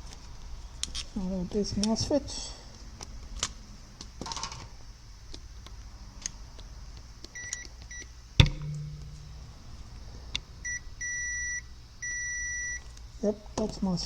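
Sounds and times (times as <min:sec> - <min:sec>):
sharp knock: 0:08.4 - 0:09.8
multimeter short beeps: 0:10.6 - 0:12.8.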